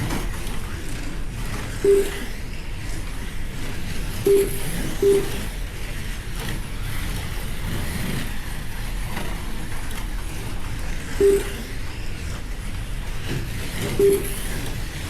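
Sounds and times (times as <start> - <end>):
slot cars running on track: 0.0 - 15.0
short electronic beep: 1.8 - 2.3, 4.3 - 5.5, 11.2 - 11.7, 14.0 - 14.5.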